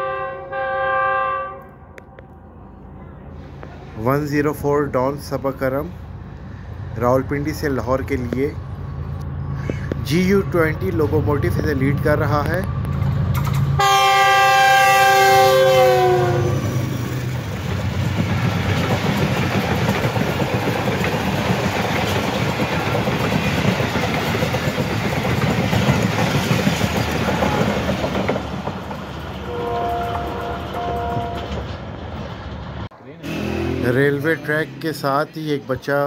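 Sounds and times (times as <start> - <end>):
locomotive multi-tone horn: 0.0 - 2.4, 13.8 - 16.8, 27.3 - 27.9, 29.4 - 31.8, 33.2 - 35.0
train wheel and rail noise: 1.6 - 36.0.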